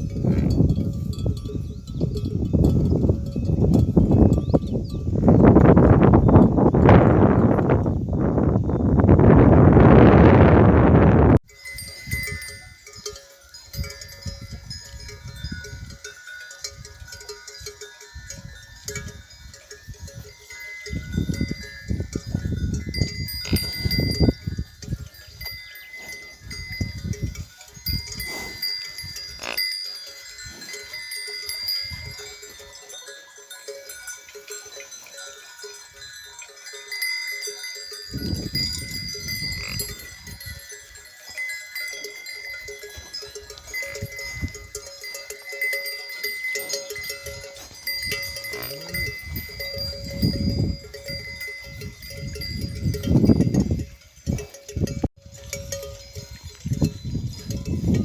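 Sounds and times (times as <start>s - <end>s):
livestock neck bells ringing: 0.0s - 9.8s, 11.4s - 58.0s.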